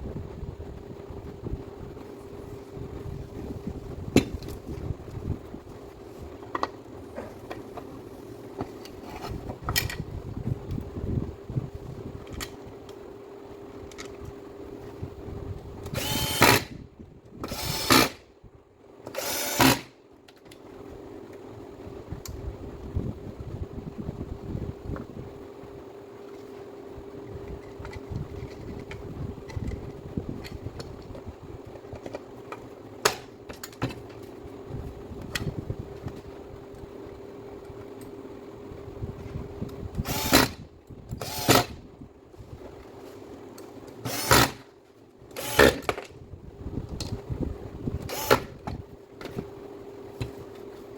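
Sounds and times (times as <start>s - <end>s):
background hum: 0.0s - 50.9s
small motor humming: 15.8s - 16.8s, 17.4s - 18.2s, 19.0s - 20.0s, 39.9s - 41.8s, 44.0s - 44.6s, 45.3s - 45.9s, 48.0s - 48.6s.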